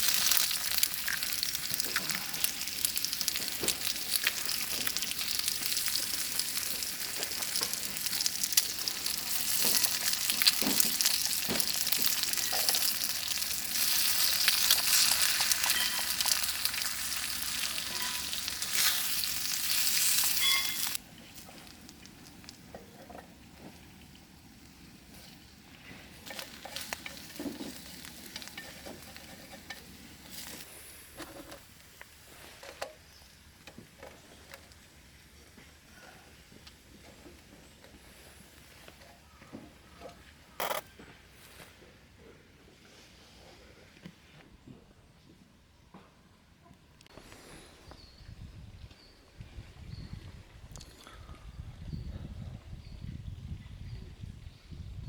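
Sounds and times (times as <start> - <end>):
food sizzling in a pan: 0.0 - 22.4.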